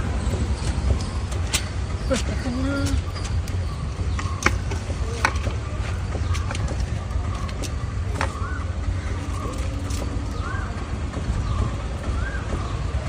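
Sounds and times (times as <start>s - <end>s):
traffic rumble: 0.0s - 13.0s
sharp clicks and taps: 4.2s - 5.6s.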